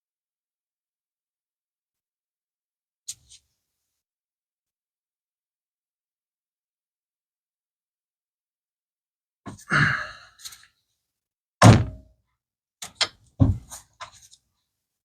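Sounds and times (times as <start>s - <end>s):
objects thunking when set down: 11.6s - 12.0s.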